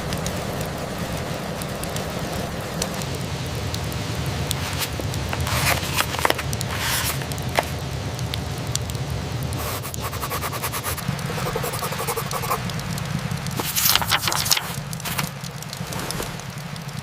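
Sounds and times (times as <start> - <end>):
campfire crackling: 0.0 - 17.0
steady rain: 0.0 - 17.0
scraping and rubbing: 4.5 - 7.8, 9.6 - 12.6, 13.6 - 16.4.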